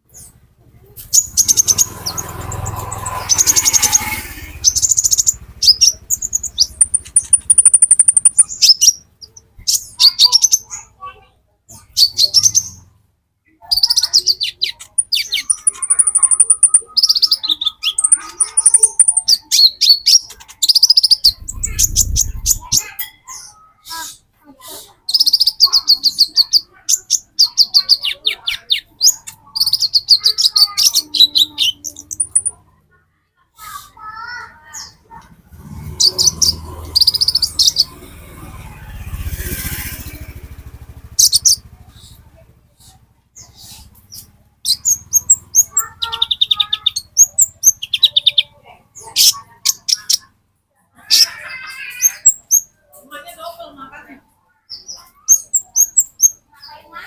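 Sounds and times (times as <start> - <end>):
bird song with thin chirps and trills: 0.0 - 32.7, 33.6 - 50.3, 51.0 - 57.0
low pulsing rumble: 21.3 - 22.8.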